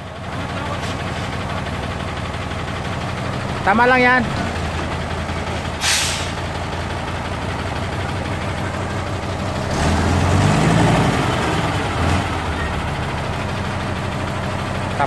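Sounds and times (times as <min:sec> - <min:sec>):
diesel truck engine idling and revving: 0:00.0 - 0:15.0.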